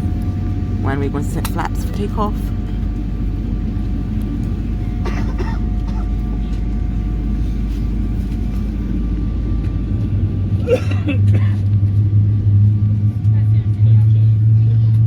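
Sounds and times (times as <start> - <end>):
deep hum: 0.0 - 15.0
jet engines idling: 0.0 - 15.0.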